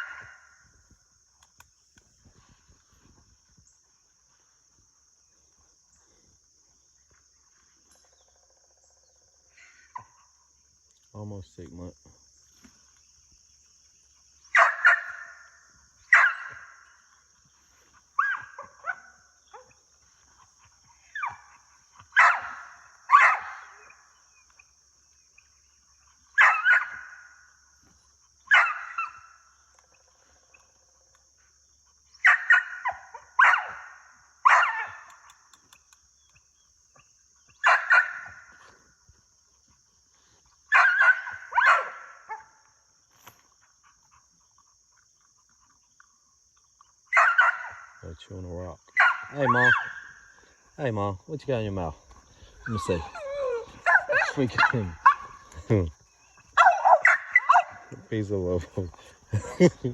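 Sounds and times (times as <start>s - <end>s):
dog barking: 0.0s - 0.5s, 14.5s - 15.5s, 16.1s - 16.9s, 18.2s - 19.8s, 21.1s - 24.0s, 26.4s - 27.3s, 28.5s - 29.4s, 32.2s - 35.3s, 37.6s - 38.7s, 40.7s - 42.6s, 47.1s - 48.0s, 48.9s - 50.2s, 52.6s - 55.9s, 56.5s - 58.0s
insects droning: 0.0s - 59.9s.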